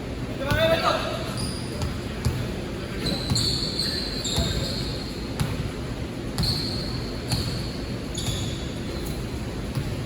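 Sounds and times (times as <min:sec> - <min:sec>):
sneakers squeaking on floor: 0:00.5 - 0:10.0
basketball bouncing on court: 0:01.7 - 0:03.6, 0:04.3 - 0:08.7, 0:09.6 - 0:10.0.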